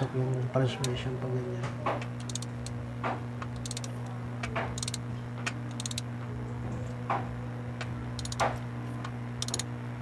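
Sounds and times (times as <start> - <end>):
steady low hum: 0.0 - 10.0
socket ratchet clicking: 2.2 - 2.8, 3.4 - 3.9, 4.8 - 5.0, 5.7 - 6.1, 8.2 - 8.5, 9.4 - 9.7.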